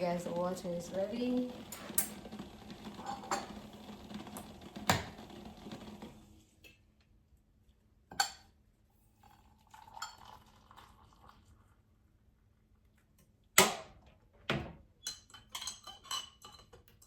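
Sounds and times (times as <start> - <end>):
dishes and utensils clinking: 2.9 - 3.8, 15.0 - 17.0.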